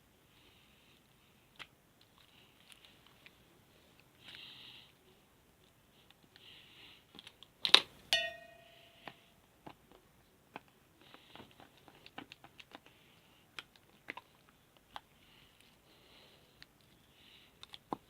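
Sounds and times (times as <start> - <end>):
short ringing tone: 8.1 - 9.3.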